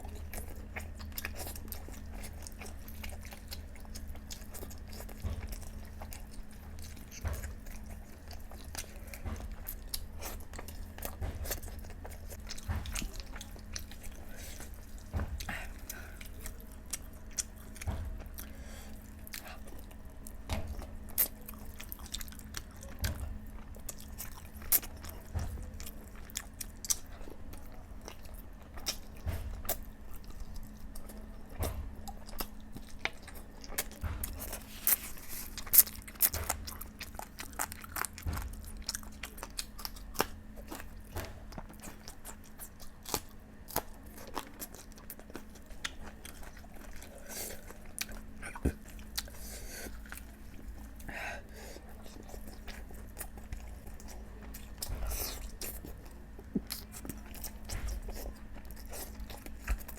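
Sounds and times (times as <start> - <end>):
faint steady hum: 0.0 - 59.9
person chewing food: 0.0 - 59.9
food crunches: 27.9 - 51.1.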